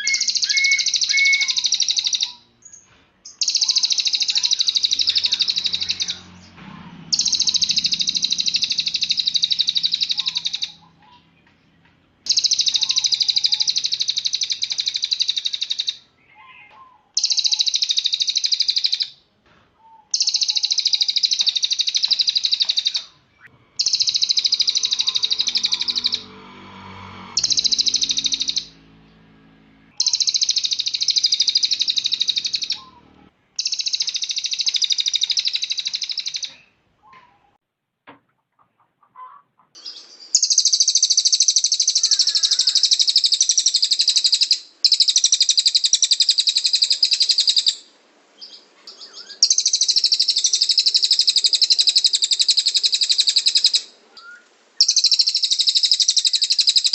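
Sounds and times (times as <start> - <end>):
songbird high trilling: 0.0 - 11.4, 12.3 - 19.2, 19.9 - 26.6, 27.4 - 29.0, 30.0 - 36.6, 39.8 - 56.9.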